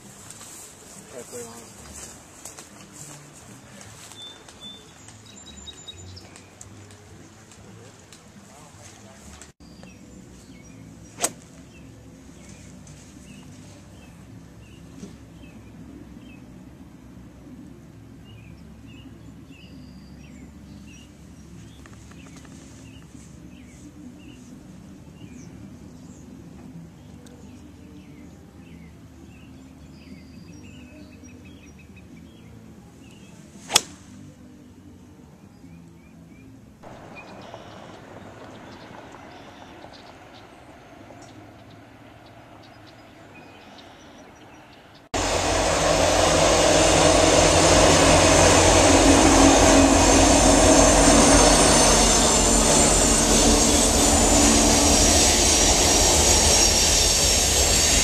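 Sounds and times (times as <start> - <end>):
low steady outdoor hum: 0.0 - 58.0
sharp cracks: 33.7 - 34.0.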